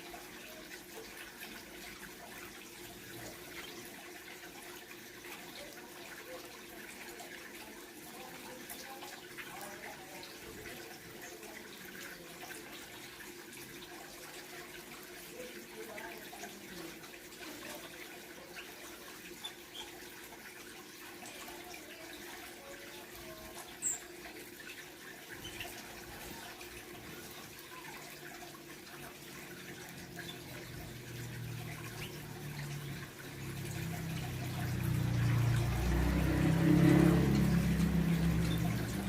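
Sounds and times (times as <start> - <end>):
trickle of running water: 0.0 - 39.0
faint bird chirps: 23.7 - 24.2.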